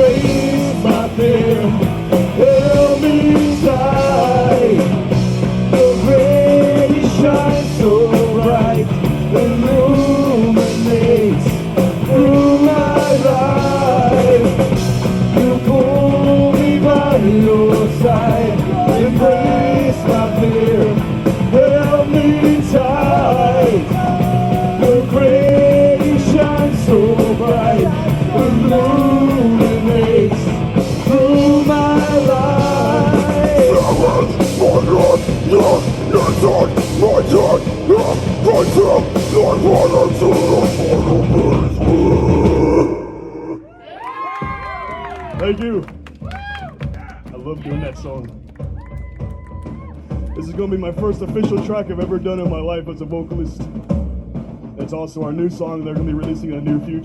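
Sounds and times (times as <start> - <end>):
held melody line: 0.0 - 41.9
fast drums: 0.0 - 43.0, 44.1 - 57.0
distorted guitars: 0.0 - 43.2
bass guitar: 0.0 - 57.0.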